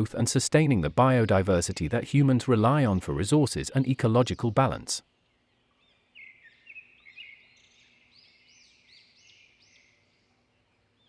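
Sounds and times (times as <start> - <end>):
faint bird chirps and whistles: 5.1 - 11.0.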